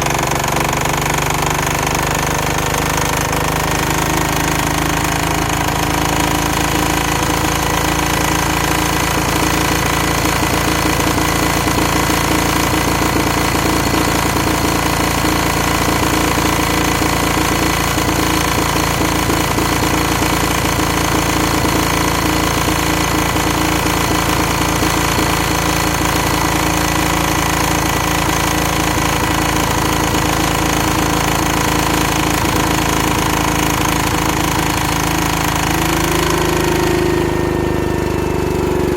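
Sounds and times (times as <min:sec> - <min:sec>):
diesel engine knocking: 0:00.0 - 0:38.9.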